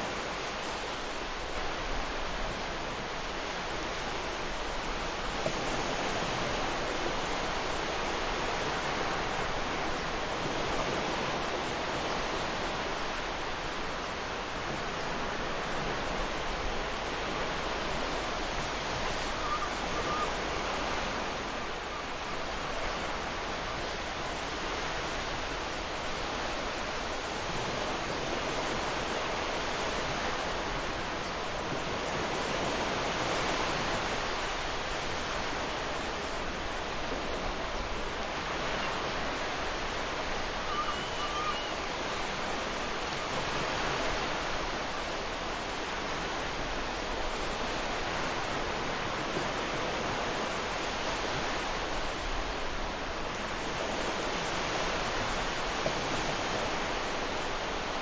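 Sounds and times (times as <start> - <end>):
ocean waves washing onto beach: 0.0 - 58.0
faint chirp: 40.7 - 41.8.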